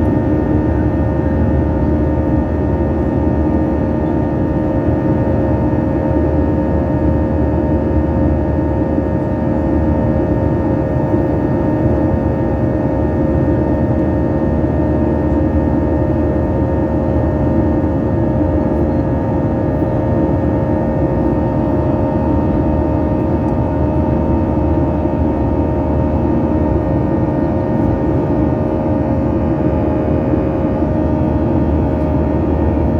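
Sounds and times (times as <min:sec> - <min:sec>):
jet engines in cabin: 0:00.0 - 0:32.9.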